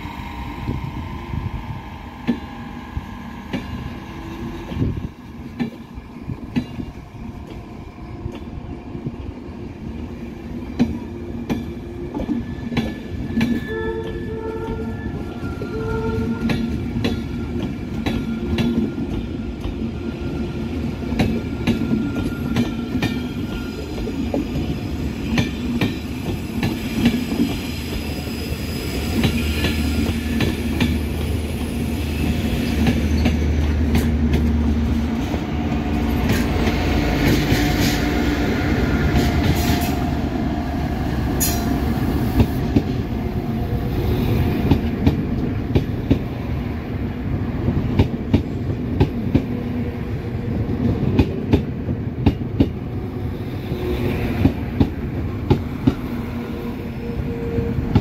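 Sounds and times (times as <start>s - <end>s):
diesel locomotive engine drone: 0.0s - 58.0s
train wheels rumbling on track: 0.0s - 58.0s
high wheel squeal: 26.3s - 30.6s.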